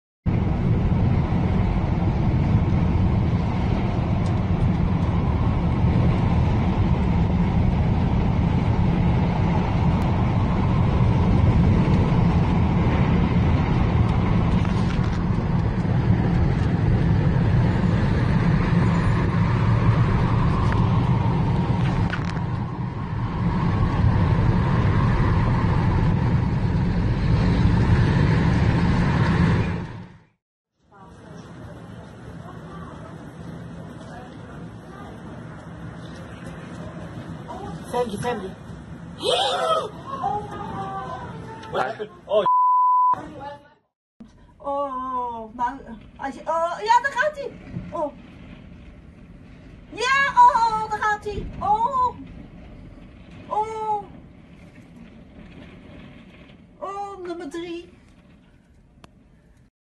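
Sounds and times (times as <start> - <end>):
storm-force wind: 0.3 - 42.3, 44.2 - 59.7
road traffic noise: 0.3 - 43.6.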